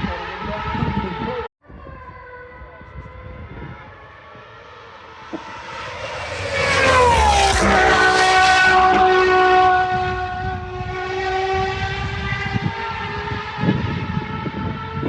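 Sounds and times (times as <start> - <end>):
sports car passing at speed: 3.2 - 15.0
low thumps: 5.2 - 9.2.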